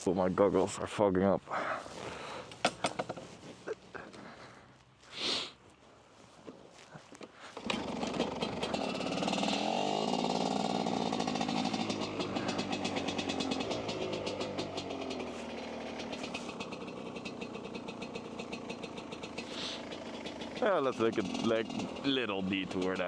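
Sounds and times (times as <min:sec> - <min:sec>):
dirt bike engine revving: 0:07.4 - 0:23.0.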